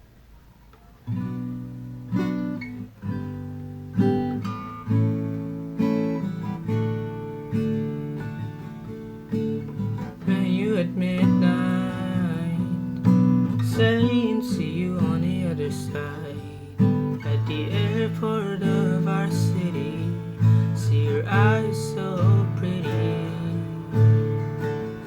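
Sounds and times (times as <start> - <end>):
acoustic guitar strumming: 0.0 - 25.0
wavering voice singing: 10.2 - 13.0, 13.6 - 24.2.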